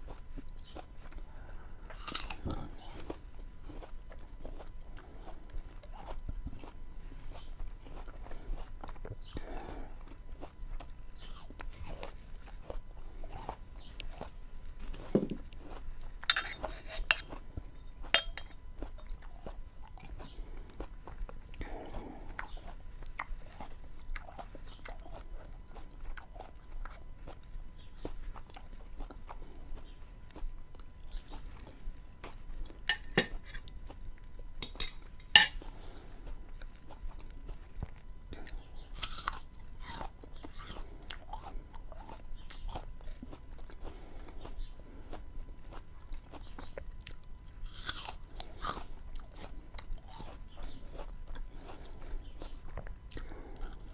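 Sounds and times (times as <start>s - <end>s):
chewing and mouth sounds: 0.0s - 53.9s.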